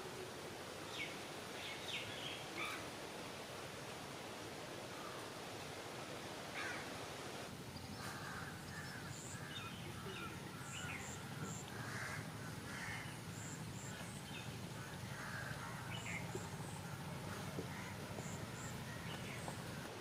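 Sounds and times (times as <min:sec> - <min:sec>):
steady low background noise: 0:00.0 - 0:20.0
birds calling: 0:07.7 - 0:20.0.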